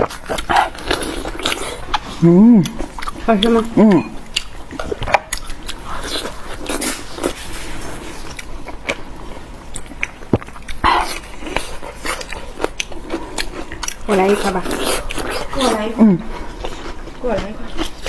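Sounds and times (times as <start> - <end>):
biting and wet chewing: 0.0 - 18.0.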